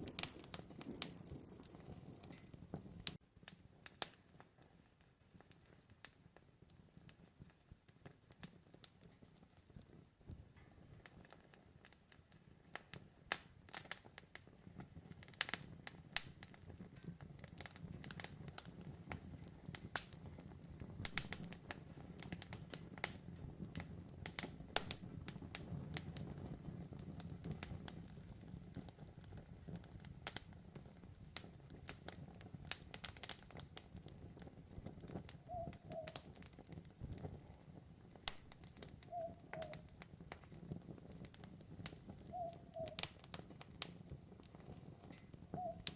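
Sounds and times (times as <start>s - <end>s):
owl calling: 0.0s - 2.6s, 35.5s - 36.2s, 39.1s - 39.8s, 42.3s - 43.0s, 45.6s - 45.8s
campfire crackling and popping: 0.0s - 45.9s.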